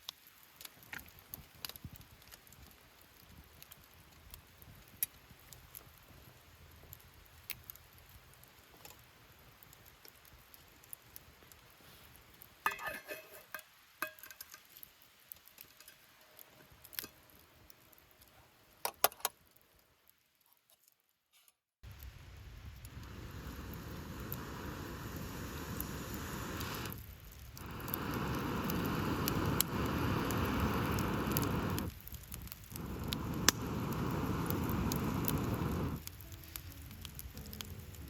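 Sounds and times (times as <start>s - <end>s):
steady hiss: 21.8s - 38.0s.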